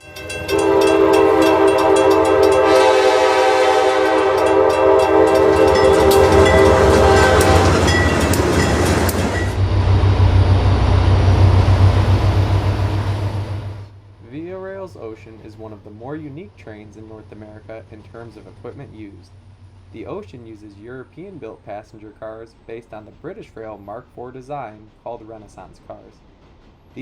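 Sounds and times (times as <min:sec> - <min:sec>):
train horn chord: 0:00.0 - 0:14.0
train rumbling past: 0:00.0 - 0:27.0.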